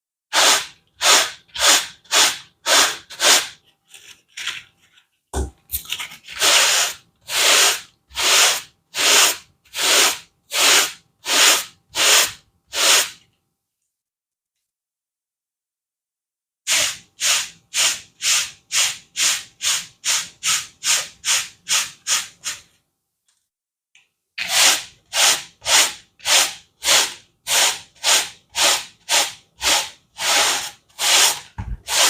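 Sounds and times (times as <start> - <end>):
brush scrubbing carpet: 0.3 - 3.5, 6.4 - 13.1, 24.4 - 32.0
knock: 5.4 - 5.6, 31.6 - 31.8.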